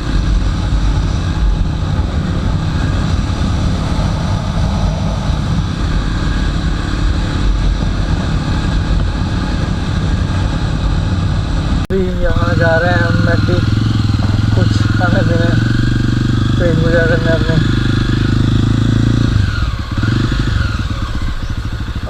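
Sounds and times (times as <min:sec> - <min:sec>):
wind noise on microphone: 0:00.0 - 0:16.6
motorcycle engine running: 0:00.0 - 0:22.0.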